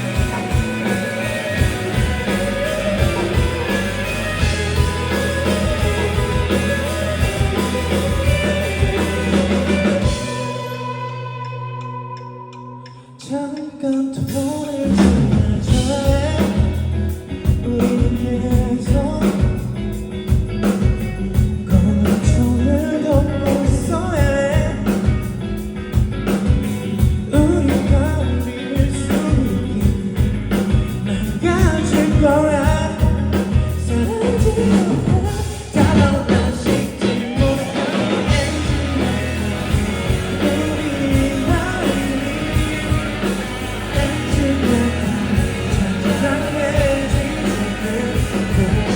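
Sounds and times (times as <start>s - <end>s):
rock band playing live: 0.0s - 13.5s, 14.1s - 48.9s
person singing: 33.8s - 48.9s.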